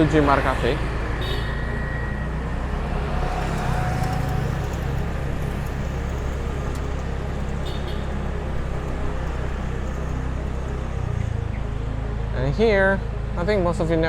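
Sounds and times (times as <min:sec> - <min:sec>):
road noise: 0:00.0 - 0:14.0
motorbike engine running: 0:02.8 - 0:12.2.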